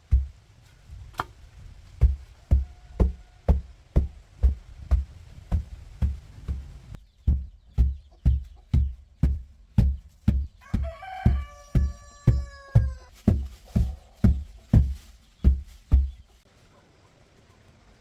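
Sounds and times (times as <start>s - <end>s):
rooster crowing: 2.5s - 3.7s, 10.6s - 13.2s
thumping background music: 7.3s - 16.2s.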